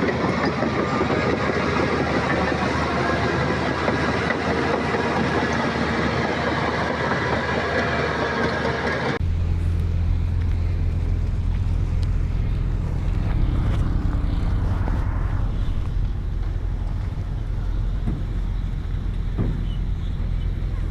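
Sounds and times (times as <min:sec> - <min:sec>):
heavy diesel machinery running: 0:00.0 - 0:20.9.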